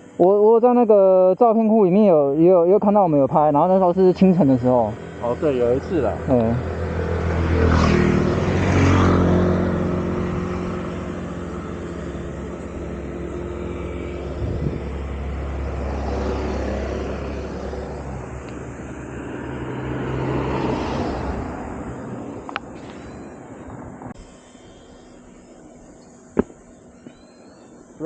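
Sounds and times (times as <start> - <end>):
motorcycle engine running: 3.8 - 28.0
wind on microphone: 14.2 - 15.2.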